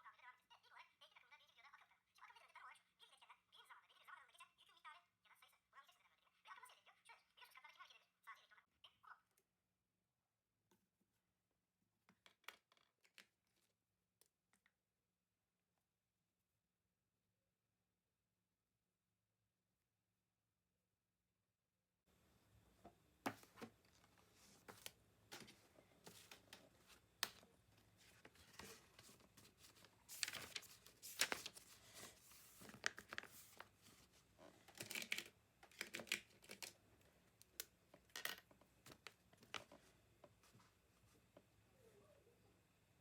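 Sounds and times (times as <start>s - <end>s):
paper rustling and crinkling: 23.3s - 36.7s.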